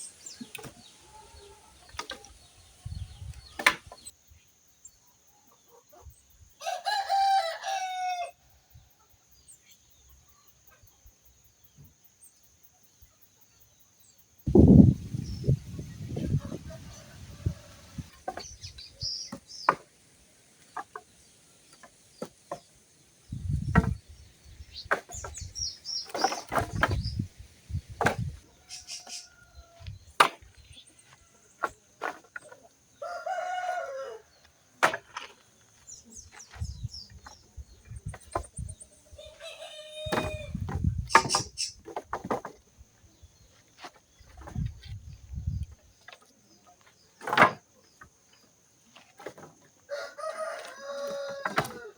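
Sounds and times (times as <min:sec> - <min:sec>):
rooster crowing: 0:06.6 - 0:08.4, 0:16.4 - 0:18.1, 0:33.0 - 0:34.3, 0:39.2 - 0:40.5, 0:49.9 - 0:51.9
dull low thumps: 0:23.3 - 0:25.8.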